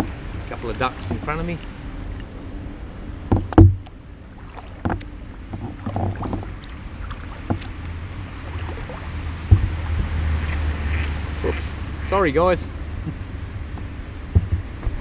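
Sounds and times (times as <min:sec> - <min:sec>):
low steady rumble: 0:00.0 - 0:15.0
sharp knocks: 0:03.3 - 0:03.8
paddle splashing in water: 0:03.3 - 0:11.8.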